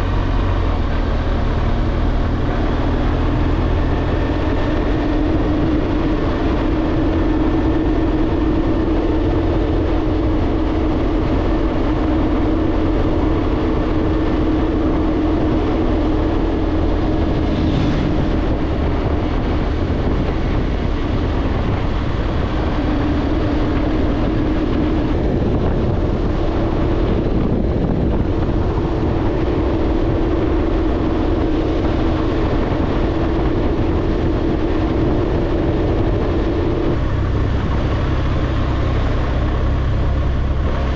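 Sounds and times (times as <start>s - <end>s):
motorcycle engine cruising: 0.0s - 40.9s
wind rush: 1.4s - 40.9s.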